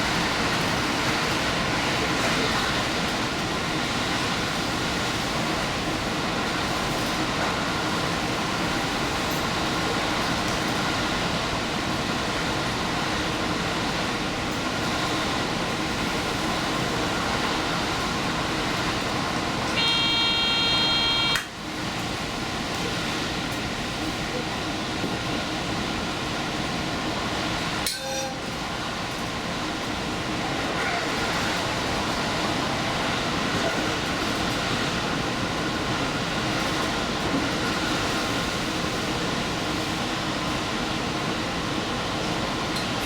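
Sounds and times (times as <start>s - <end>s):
train wheels rumbling on rail: 0.0s - 43.0s
train horn: 19.7s - 21.5s.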